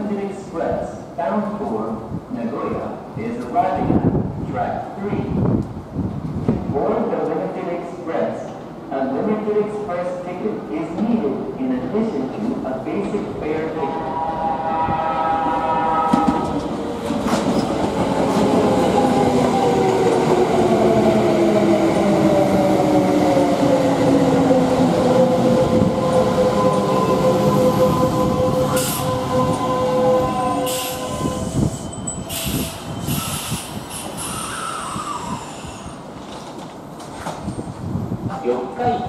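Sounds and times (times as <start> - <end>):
electric train braking to a stop: 26.6 - 36.0
short air hisses: 32.3 - 36.0
wheel and rail rumble: 36.0 - 39.0.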